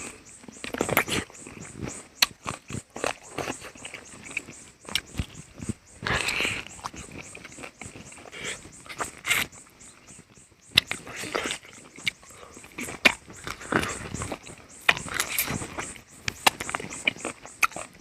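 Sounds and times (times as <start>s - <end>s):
wet chewing and lip-smacking: 0.0s - 18.0s
slurping: 2.2s - 9.6s.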